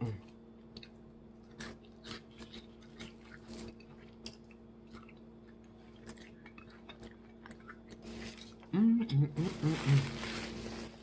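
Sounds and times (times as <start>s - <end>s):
person chewing crunchy food: 0.0s - 8.7s
faint steady hum: 0.0s - 11.0s.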